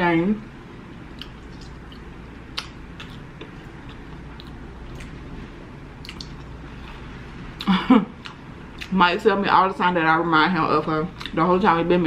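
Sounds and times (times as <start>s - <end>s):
low steady hum: 0.0s - 12.0s
person chewing crunchy food: 1.1s - 5.2s, 6.0s - 7.1s.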